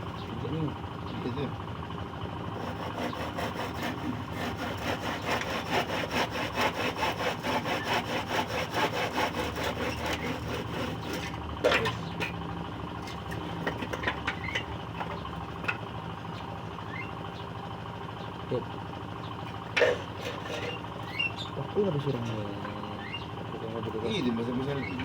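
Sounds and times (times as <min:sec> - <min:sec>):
hand saw cutting wood: 0:02.6 - 0:11.9, 0:19.7 - 0:21.2.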